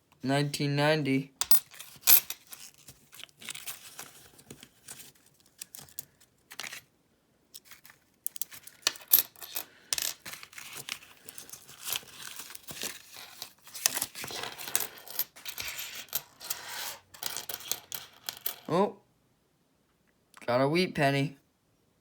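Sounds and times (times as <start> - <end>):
coins clinking and sliding: 1.4 - 2.8, 8.3 - 18.7.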